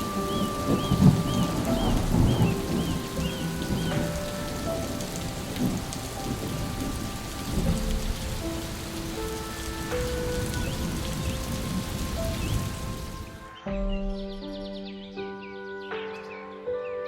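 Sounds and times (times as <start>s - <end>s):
steady rain: 0.0s - 13.6s
thunder rumbles: 0.0s - 14.4s
slow piano notes: 0.0s - 17.0s.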